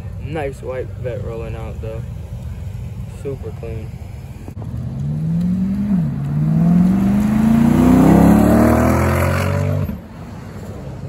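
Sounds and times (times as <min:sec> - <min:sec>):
car engine accelerating hard: 0:04.6 - 0:10.0.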